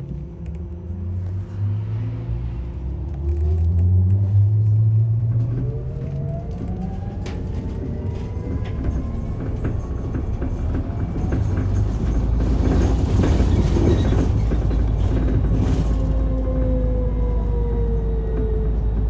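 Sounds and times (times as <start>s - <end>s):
bus low rumble: 0.0s - 19.0s.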